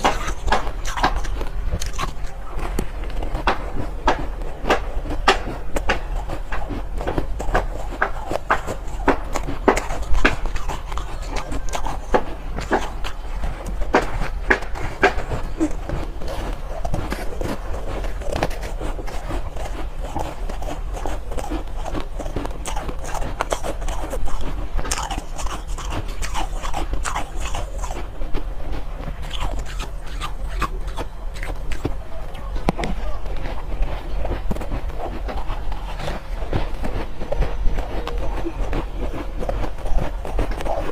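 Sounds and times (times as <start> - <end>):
chewing crunchy ice: 0.0 - 40.9.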